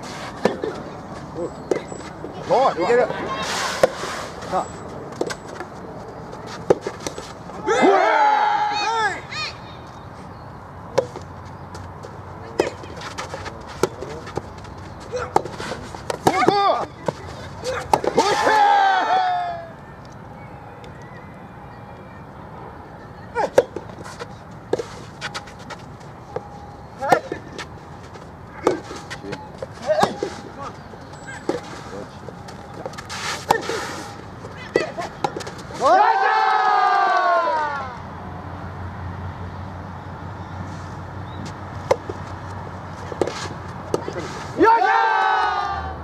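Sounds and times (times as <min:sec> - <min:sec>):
racket hitting tennis ball: 0:00.0 - 0:00.8, 0:03.4 - 0:04.3, 0:06.4 - 0:07.4, 0:12.5 - 0:18.6, 0:28.5 - 0:30.6, 0:32.5 - 0:35.9, 0:43.0 - 0:44.5
person shouting: 0:07.6 - 0:09.6
crowd hum: 0:11.2 - 0:38.4, 0:40.5 - 0:46.0.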